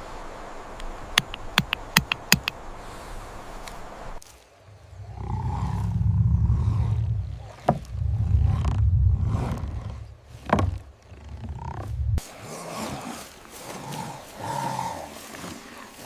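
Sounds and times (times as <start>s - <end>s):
sharp crack: 0.8s - 2.6s
large animal growling: 4.7s - 16.0s.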